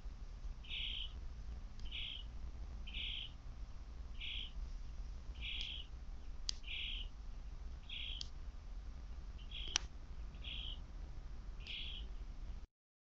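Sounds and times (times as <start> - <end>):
bird harsh call: 0.6 - 1.2, 1.8 - 3.4, 4.2 - 4.6, 5.4 - 5.9, 6.6 - 7.1, 7.8 - 8.2, 9.4 - 10.8, 11.6 - 12.1.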